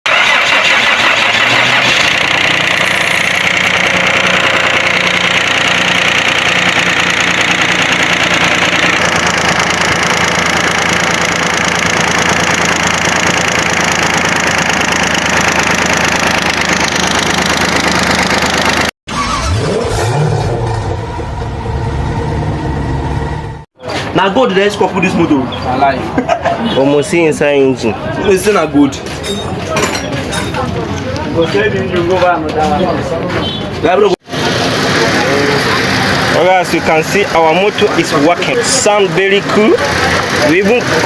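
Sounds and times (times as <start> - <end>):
car engine running: 0.1 - 23.7, 34.2 - 41.0.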